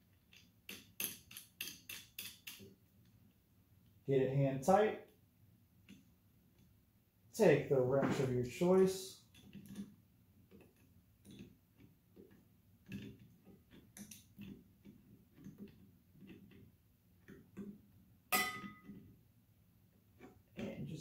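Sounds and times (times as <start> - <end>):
sharp metallic clink: 18.3 - 18.8.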